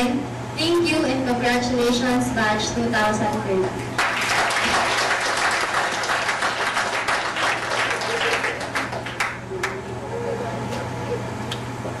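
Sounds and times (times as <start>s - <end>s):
audience applauding: 4.0s - 9.9s.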